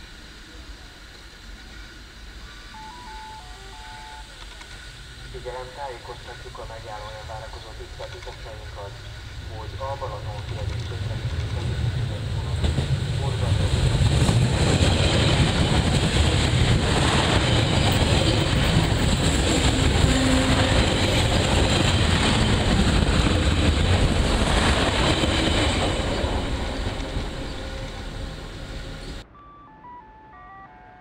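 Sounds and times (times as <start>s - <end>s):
public address chime: 2.8s - 4.3s
train wheels rumbling on rail: 3.8s - 29.2s.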